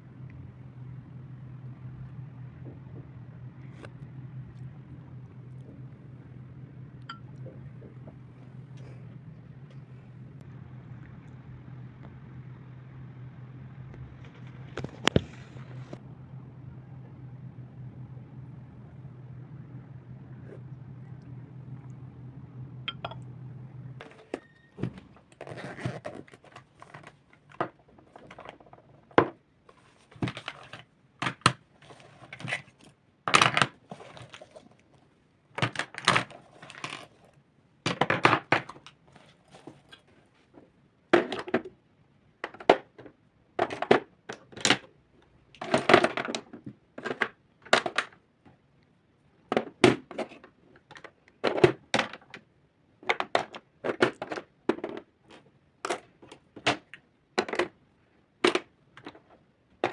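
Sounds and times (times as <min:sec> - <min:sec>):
low steady hum: 0:00.0 - 0:47.8.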